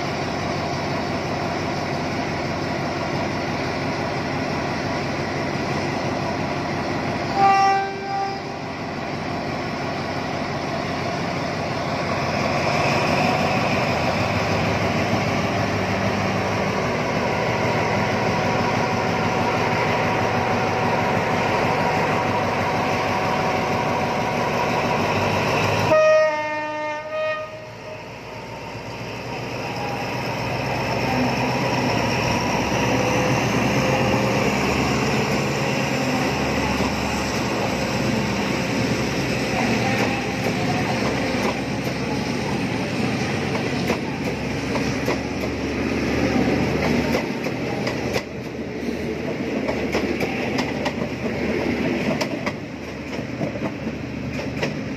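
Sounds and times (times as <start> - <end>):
diesel locomotive engine: 0.0 - 54.9
train horn blast: 7.3 - 8.6, 25.8 - 27.8.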